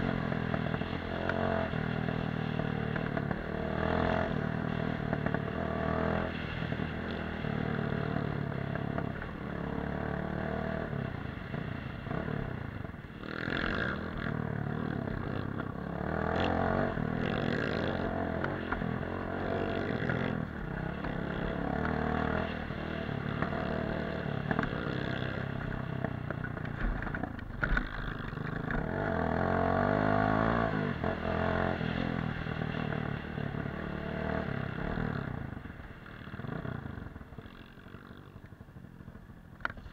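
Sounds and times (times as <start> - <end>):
dirt bike engine revving: 13.2 - 35.3.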